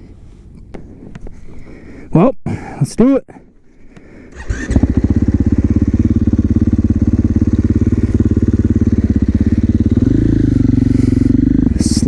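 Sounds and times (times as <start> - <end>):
motorcycle engine starting and idling: 4.0 - 12.0.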